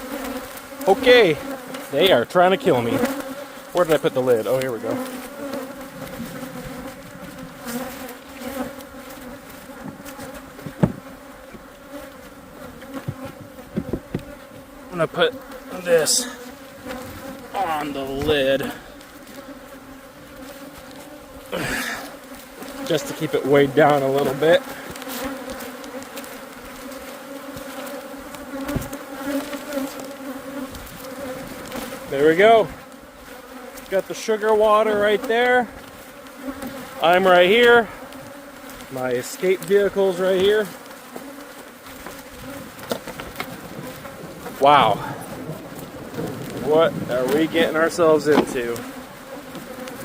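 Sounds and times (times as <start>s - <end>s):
bees buzzing: 0.0s - 50.0s
soft thump: 10.6s - 11.1s.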